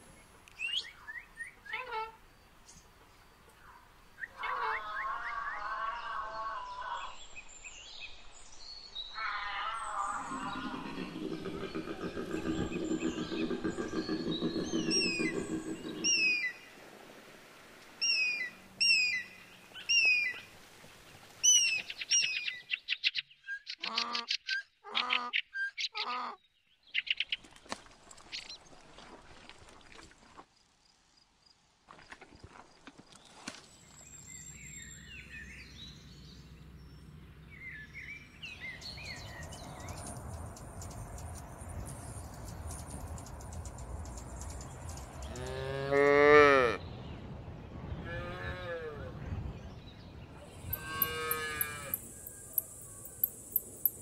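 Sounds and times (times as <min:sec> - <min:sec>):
bird chirping: 0:07.1 - 0:16.8, 0:33.8 - 0:45.5, 0:49.8 - 0:54.0
animal calls: 0:09.2 - 0:16.7, 0:50.6 - 0:53.4
koala bellowing: 0:50.6 - 0:52.6.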